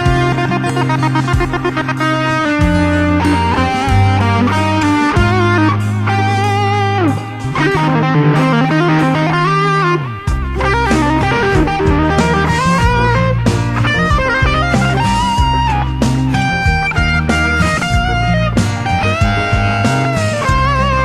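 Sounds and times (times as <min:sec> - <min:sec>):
overdriven electric guitar melody: 0:00.0 - 0:21.0
sustained low bass notes: 0:00.0 - 0:21.0.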